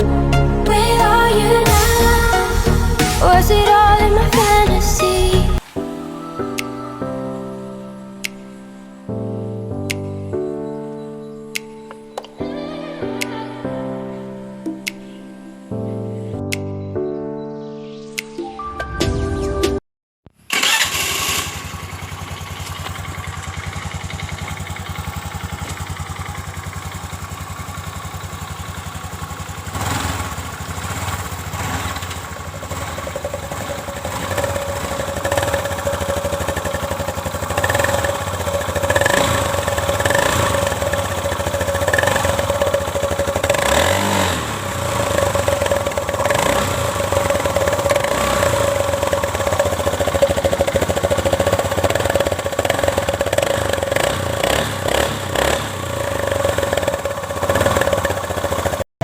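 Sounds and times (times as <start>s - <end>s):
motorcycle engine revving: 20.5s - 58.9s.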